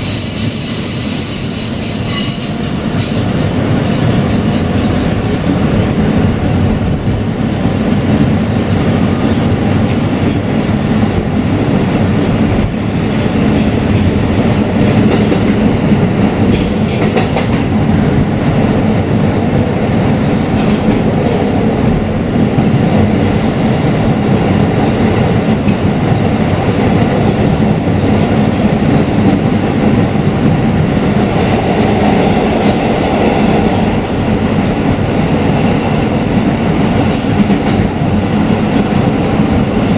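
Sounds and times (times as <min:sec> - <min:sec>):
subway wheels rumbling on rail: 0:00.0 - 0:39.9.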